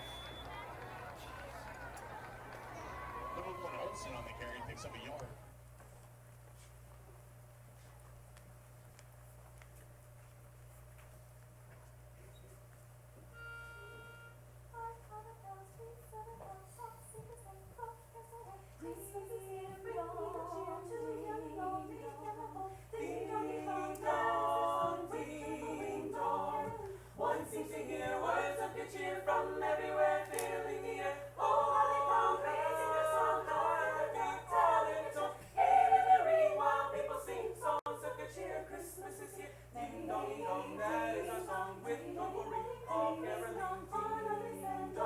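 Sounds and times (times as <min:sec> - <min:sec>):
group singing a cappella: 0:14.8 - 0:45.0.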